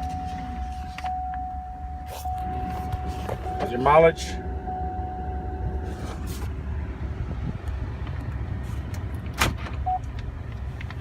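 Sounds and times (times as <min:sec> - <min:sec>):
short beep: 0:00.0 - 0:05.9
engine idling rumble: 0:00.0 - 0:11.0.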